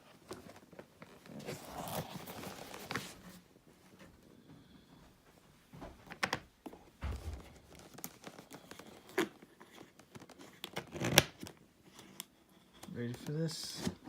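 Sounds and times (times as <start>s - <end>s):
packaging rustling: 0.2s - 3.4s, 7.4s - 12.2s.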